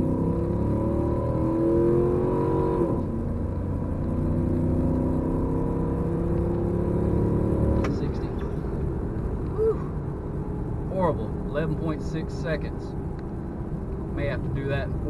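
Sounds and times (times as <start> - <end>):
engine accelerating at full throttle: 0.0 - 8.6.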